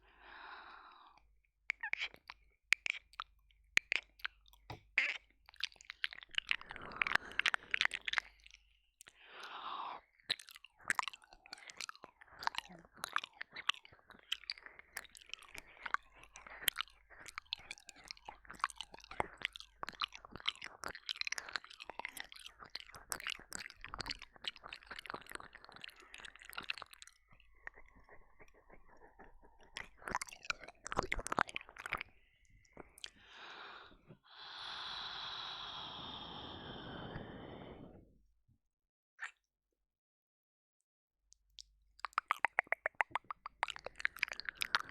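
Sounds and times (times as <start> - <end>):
wet mouth clicks and licks: 1.7 - 33.6, 41.3 - 44.9.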